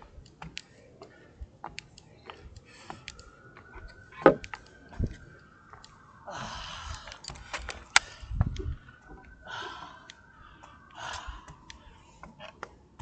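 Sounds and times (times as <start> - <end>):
man breathing hard: 2.2 - 3.2, 6.2 - 12.4.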